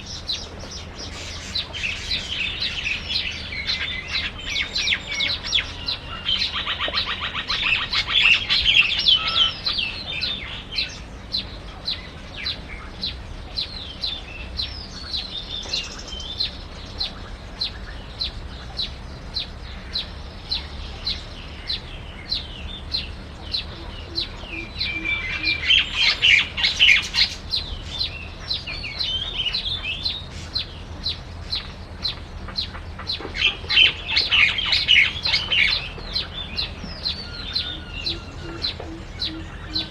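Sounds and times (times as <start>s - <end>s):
birds chattering rapidly: 0.0s - 39.9s
small birds chirping: 0.0s - 39.9s.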